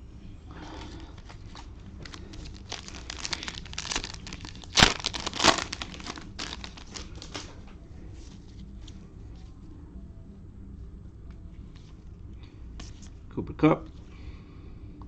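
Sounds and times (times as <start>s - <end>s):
cellophane packs crinkling: 1.0s - 7.5s
wrappers being torn open: 1.0s - 7.5s.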